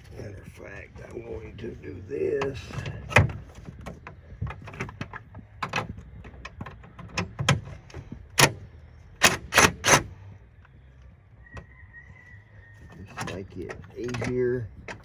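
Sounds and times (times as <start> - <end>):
tools clicking in engine bay: 2.4 - 10.8, 12.9 - 15.0.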